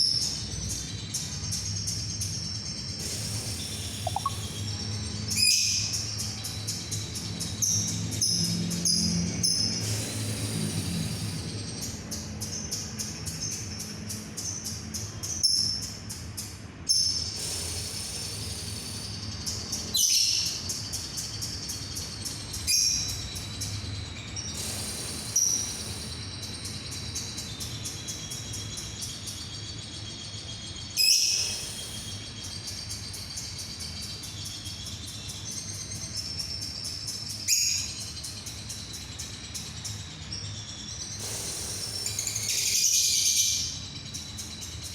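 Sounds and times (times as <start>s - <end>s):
sharp bird calls: 0.0s - 6.7s, 7.6s - 16.0s, 16.9s - 44.9s
lovebird trilling: 3.0s - 5.9s, 31.0s - 32.4s, 41.0s - 43.8s.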